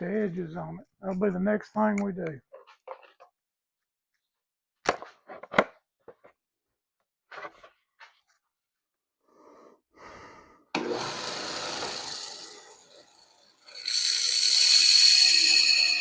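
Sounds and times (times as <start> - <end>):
power grinder grinding steel: 10.8 - 16.0.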